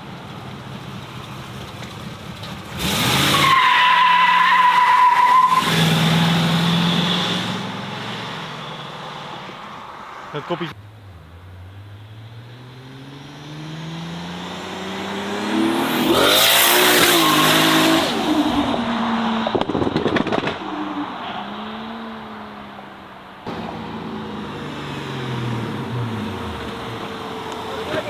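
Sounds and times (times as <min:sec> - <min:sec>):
car engine running steadily: 0:00.0 - 0:02.9
car accelerating past: 0:05.5 - 0:28.0
engine crackling burst: 0:16.1 - 0:26.9.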